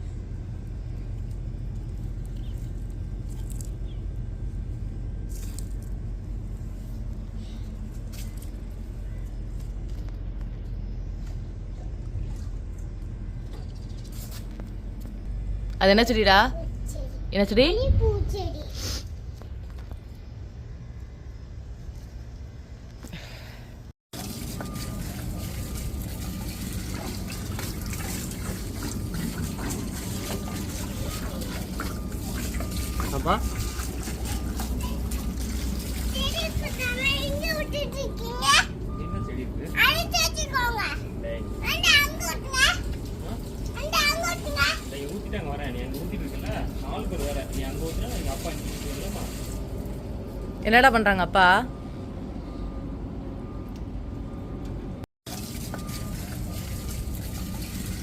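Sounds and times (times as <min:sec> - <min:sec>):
water pouring and trickling: 0:24.2 - 0:38.2, 0:41.6 - 0:50.0, 0:55.3 - 0:58.0.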